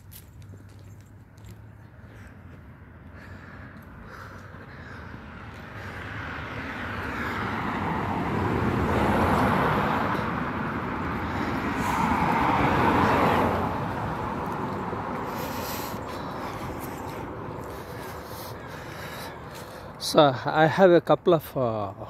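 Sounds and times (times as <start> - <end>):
vehicles passing: 0.0 - 22.0.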